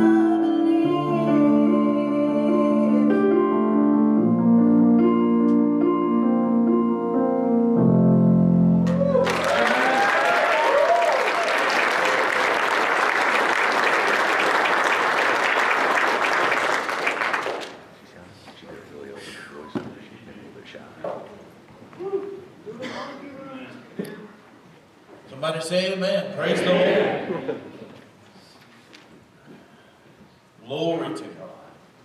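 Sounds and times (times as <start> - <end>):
piano chords: 0.0 - 10.0
congregation applauding: 8.8 - 18.0.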